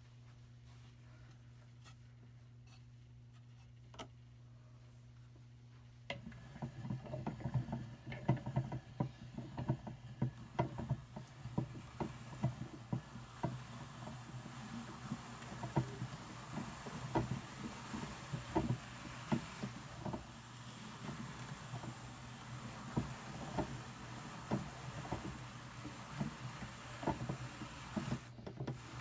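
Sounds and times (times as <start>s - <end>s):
drum carder clicking and scratching: 6.1s - 29.0s.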